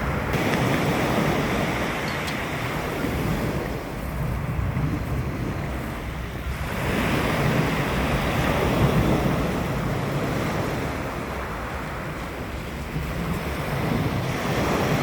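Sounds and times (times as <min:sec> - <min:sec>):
sea waves breaking on shore: 0:00.0 - 0:15.0
wind buffeting microphone: 0:00.0 - 0:15.0.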